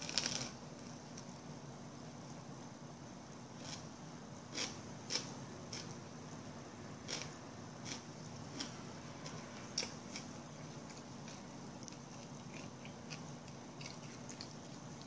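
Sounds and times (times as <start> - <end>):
crunchy chewing of a sandwich: 0.0 - 1.4, 3.6 - 6.1, 7.0 - 15.0.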